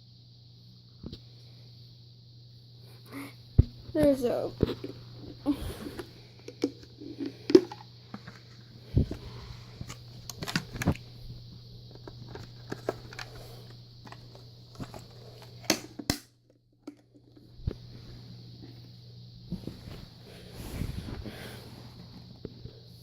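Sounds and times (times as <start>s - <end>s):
faint steady hum: 0.0s - 23.0s
clicks and knocks of handling: 11.9s - 13.4s.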